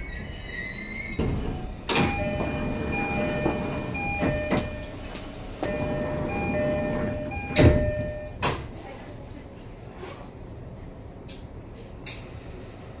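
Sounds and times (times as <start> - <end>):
electric train running noise: 0.9 - 8.3.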